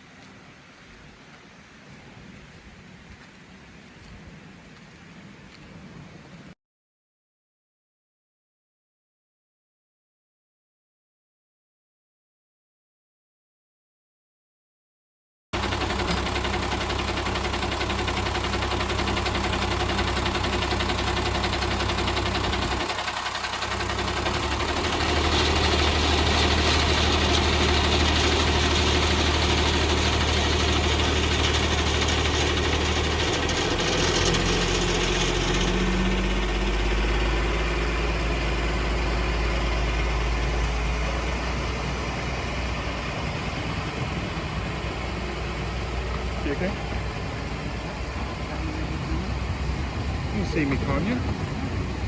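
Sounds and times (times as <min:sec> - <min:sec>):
engine idling: 0:15.6 - 0:52.0.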